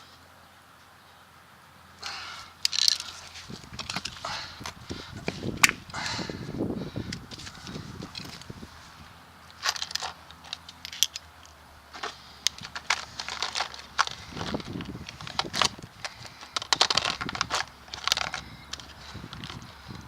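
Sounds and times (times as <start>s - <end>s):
metallic tool clicks and clinks: 9.6s - 11.6s.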